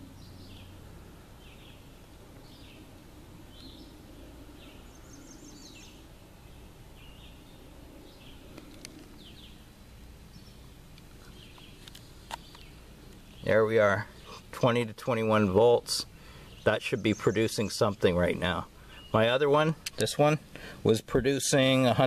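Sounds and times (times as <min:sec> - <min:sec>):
outdoor background noise: 0:00.0 - 0:22.0
bird chirping and trilling: 0:01.4 - 0:10.6, 0:16.2 - 0:19.4.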